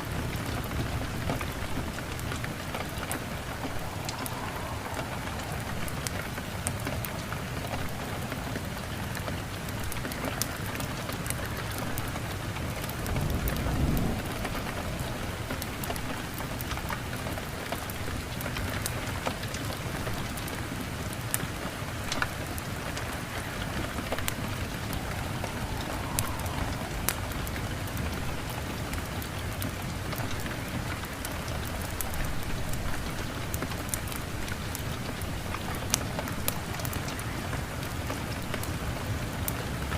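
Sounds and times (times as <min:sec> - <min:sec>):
thunder rumble: 0:00.0 - 0:17.9, 0:22.2 - 0:30.9
heavy rain: 0:00.0 - 0:39.9
sharp crackles and ticks: 0:00.2 - 0:39.9.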